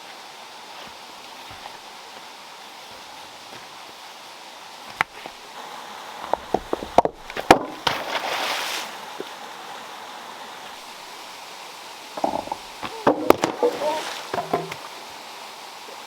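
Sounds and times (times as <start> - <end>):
running water: 0.0 - 16.0
water splash: 7.4 - 9.0, 12.9 - 15.0
stones knocking together: 12.2 - 14.8.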